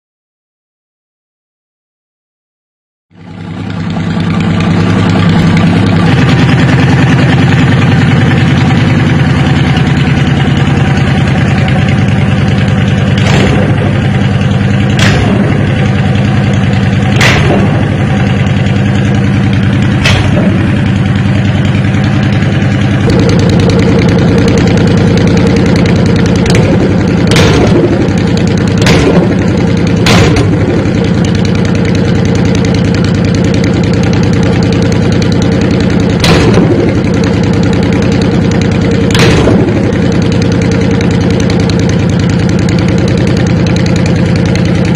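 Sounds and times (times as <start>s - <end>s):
motorcycle engine revving: 3.1s - 44.9s
exhaust backfire pops: 3.6s - 44.9s.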